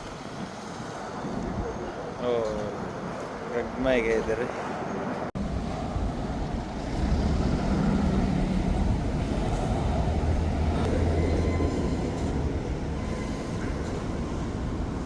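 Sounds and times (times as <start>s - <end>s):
vehicle engine rumbling: 5.4s - 15.0s.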